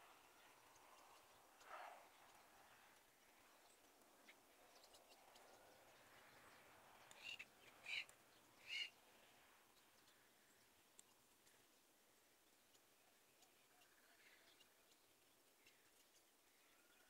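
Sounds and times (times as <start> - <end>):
bird short calls: 7.2 - 9.0.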